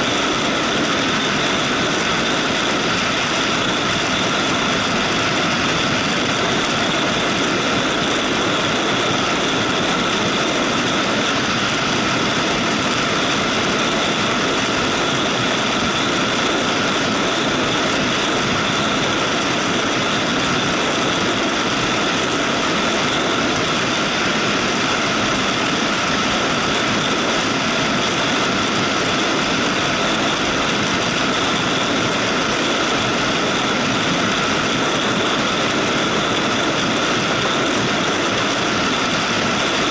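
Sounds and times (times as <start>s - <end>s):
motorcycle engine drone: 0.0s - 39.9s
wind and road noise: 0.0s - 39.9s.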